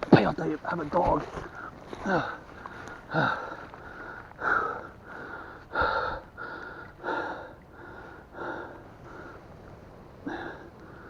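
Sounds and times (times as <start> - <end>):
man breathing hard: 1.5 - 9.6, 10.2 - 11.0.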